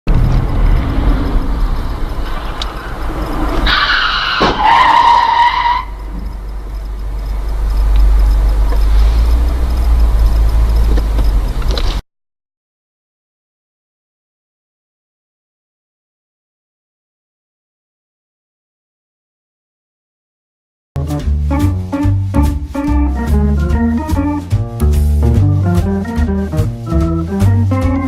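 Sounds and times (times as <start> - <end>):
vehicle low rumble: 0.1 - 3.8, 5.9 - 12.0, 21.0 - 28.0
loud high-pitched squeal: 0.2 - 6.1.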